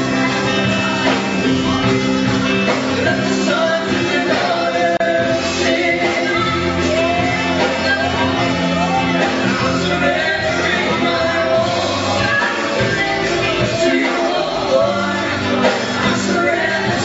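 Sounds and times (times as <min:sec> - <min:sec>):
band playing worship music: 0:00.0 - 0:17.0
person singing: 0:00.0 - 0:17.0.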